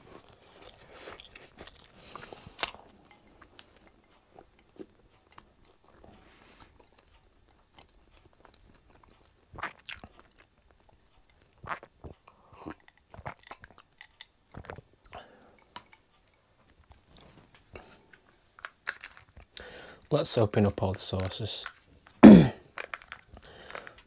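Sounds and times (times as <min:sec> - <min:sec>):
person chewing food: 0:00.0 - 0:20.1, 0:21.7 - 0:24.0
sipping and swallowing: 0:09.6 - 0:10.1, 0:11.6 - 0:13.6, 0:14.5 - 0:15.2.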